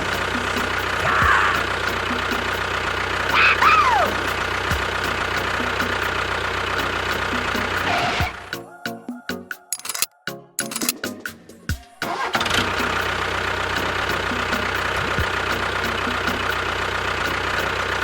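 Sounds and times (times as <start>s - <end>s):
engine idling with ticking knock: 0.0s - 7.9s, 12.1s - 18.0s.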